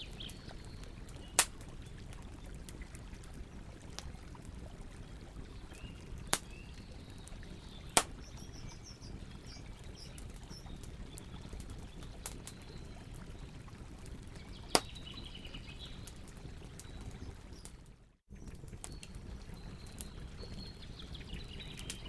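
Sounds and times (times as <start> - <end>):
campfire crackling: 0.0 - 22.0
bird chirps: 5.8 - 10.8.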